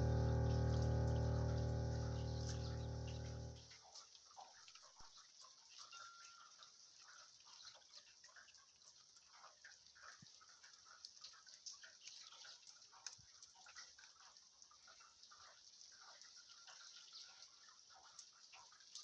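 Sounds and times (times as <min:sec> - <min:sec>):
faint rain hiss: 0:00.0 - 0:03.6
rain drips and taps: 0:00.0 - 0:19.0.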